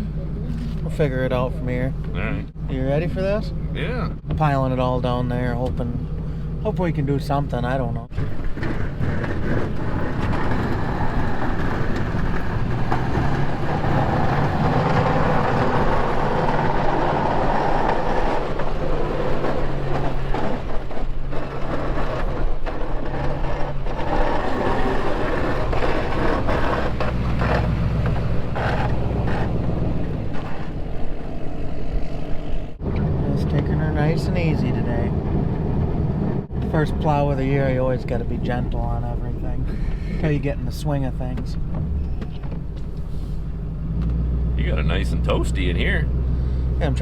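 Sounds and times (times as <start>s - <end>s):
plow blade scraping snow: 6.3s - 42.0s, 42.8s - 47.0s
truck engine running under load: 8.1s - 40.8s.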